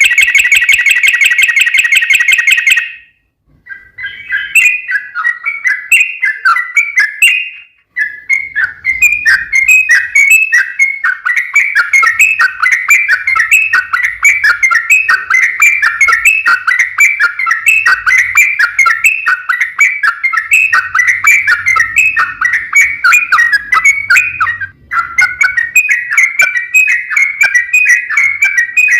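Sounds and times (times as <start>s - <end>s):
bird chattering song: 0.0s - 28.9s.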